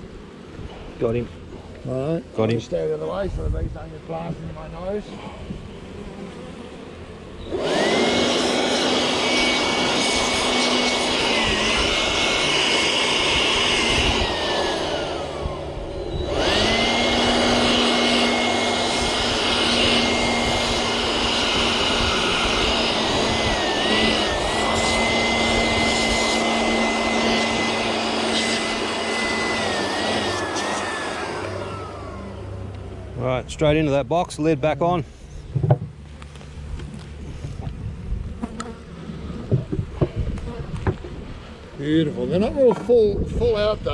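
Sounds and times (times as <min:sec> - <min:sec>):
electric blower whining: 0:00.0 - 0:34.0.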